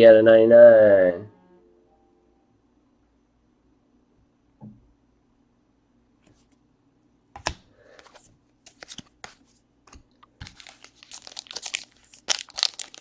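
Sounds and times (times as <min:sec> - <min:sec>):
cards being handled: 0:07.4 - 0:13.0
wrapper crinkling and tearing: 0:10.4 - 0:13.0.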